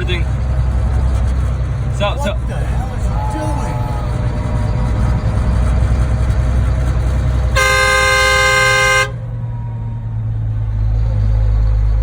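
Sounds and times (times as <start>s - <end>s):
road and engine rumble: 0.0s - 12.0s
vehicle horn blast: 7.5s - 9.3s.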